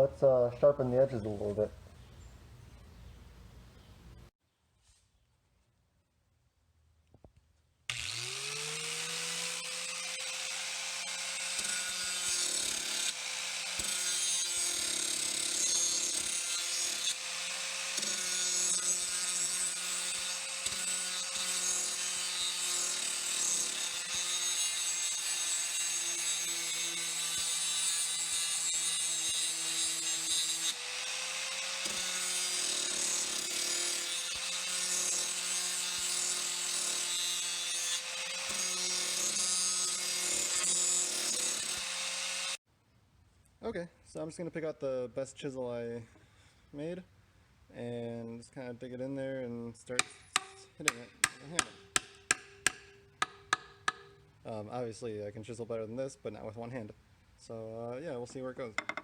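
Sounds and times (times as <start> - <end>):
electric grinder grinding metal: 7.9 - 42.6.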